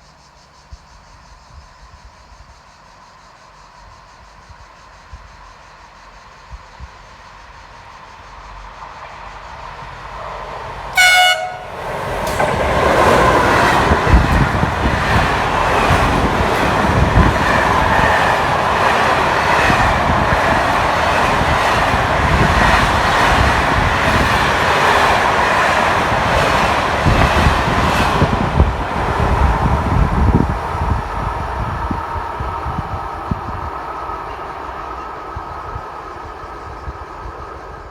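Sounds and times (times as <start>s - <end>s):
rush of wheels on rail: 3.8s - 37.9s
wheels clacking over rail joints: 10.2s - 31.2s
train horn blast: 11.0s - 11.8s.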